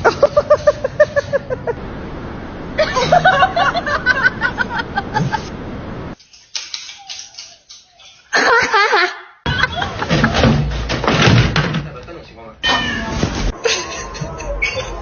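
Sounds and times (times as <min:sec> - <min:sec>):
people laughing: 0:00.0 - 0:01.8, 0:02.8 - 0:05.5, 0:08.3 - 0:10.6, 0:13.6 - 0:15.0.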